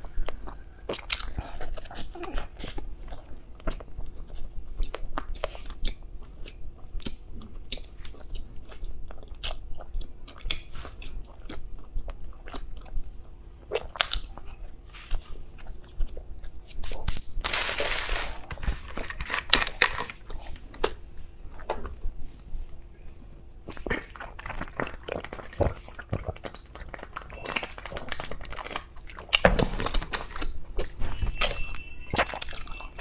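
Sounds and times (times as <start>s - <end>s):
chewing with wet mouth clicks: 0.0s - 17.3s, 18.6s - 33.0s
plastic bottle crinkling: 16.8s - 20.9s.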